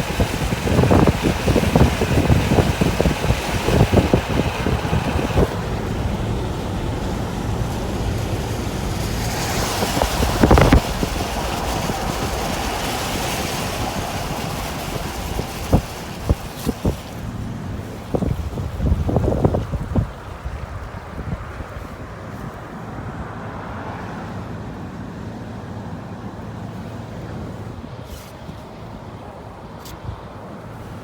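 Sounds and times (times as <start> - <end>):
wind buffeting microphone: 0.0 - 23.4.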